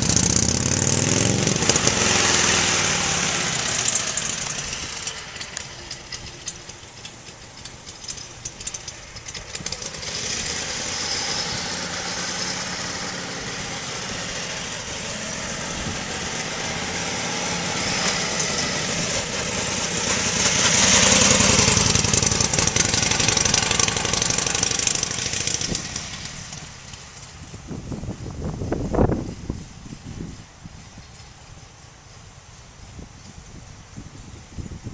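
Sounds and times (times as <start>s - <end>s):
motorcycle engine idling: 3.7s - 11.0s, 18.0s - 33.4s.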